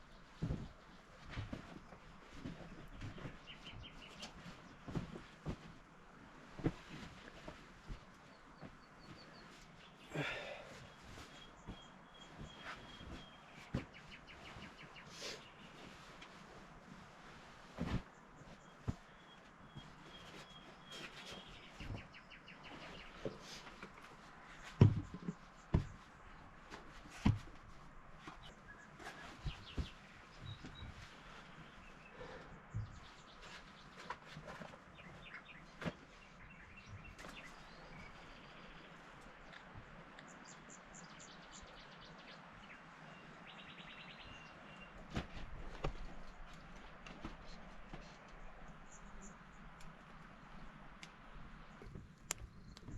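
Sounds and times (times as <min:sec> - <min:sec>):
birds chirping faintly: 0:00.0 - 0:52.9
faint bird chirps: 0:08.3 - 0:16.0.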